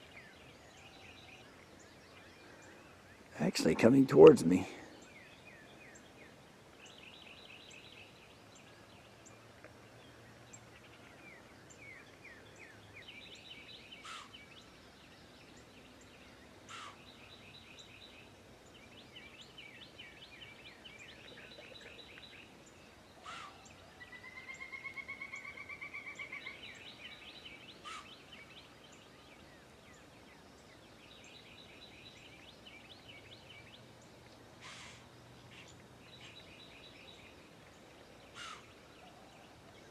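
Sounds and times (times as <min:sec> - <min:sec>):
sharp down-slurred bird calls: 0:13.5 - 0:14.5, 0:16.6 - 0:18.0, 0:23.1 - 0:28.8, 0:34.6 - 0:37.3, 0:38.3 - 0:39.2.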